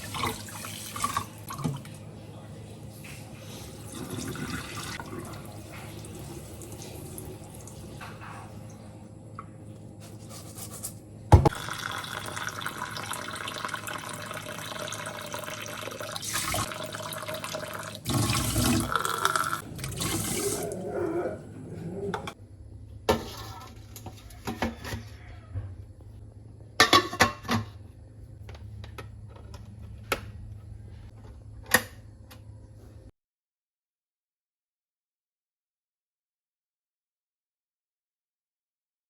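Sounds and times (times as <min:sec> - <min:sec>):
tap water running into sink: 0:11.5 - 0:20.7.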